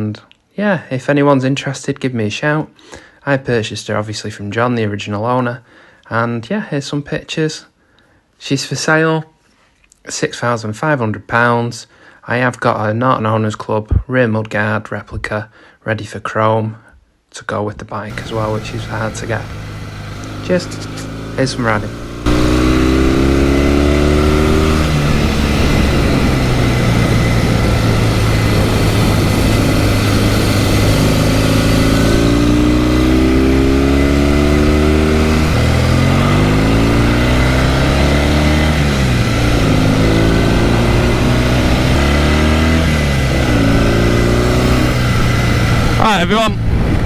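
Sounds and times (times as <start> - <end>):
motorcycle engine accelerating: 18.1 - 47.0.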